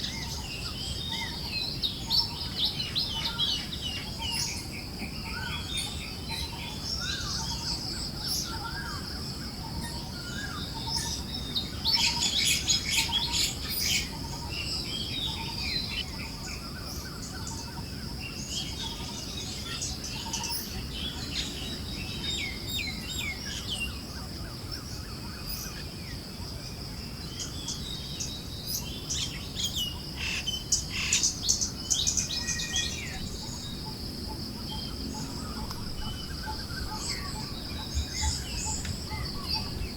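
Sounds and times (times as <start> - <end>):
birds chirping and calling: 0.0 - 17.8, 18.4 - 24.0, 27.4 - 39.9.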